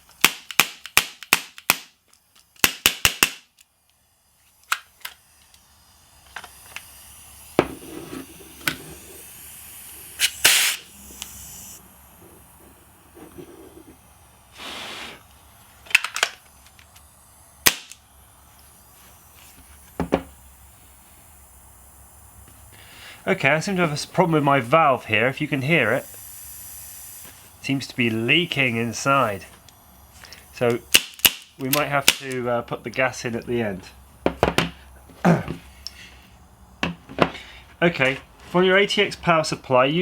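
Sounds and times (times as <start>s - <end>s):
air pistol mechanism clicks: 0.0s - 7.9s, 10.2s - 11.4s, 15.2s - 18.0s, 28.0s - 33.0s, 35.8s - 36.0s
gas hissing: 0.0s - 40.0s.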